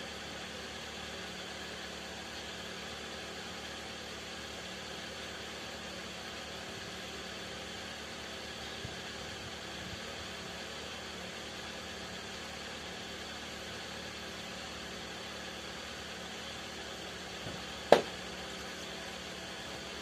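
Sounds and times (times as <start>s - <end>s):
engine-like hum: 0.0s - 20.0s
sharp knock: 17.9s - 18.1s.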